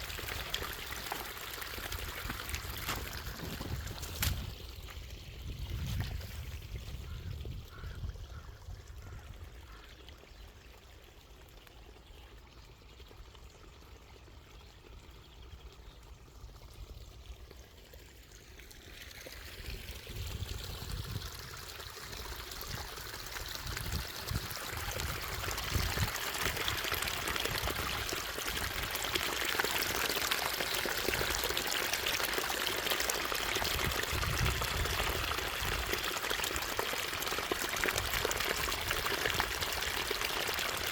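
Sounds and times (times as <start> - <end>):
water running and pouring: 0.0 - 7.5, 16.4 - 40.9.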